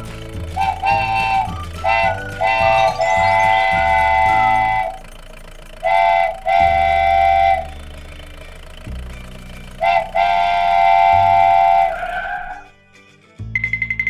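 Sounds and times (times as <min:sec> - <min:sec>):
vehicle horn tooting: 0:00.5 - 0:05.1, 0:05.8 - 0:08.0, 0:09.7 - 0:12.7.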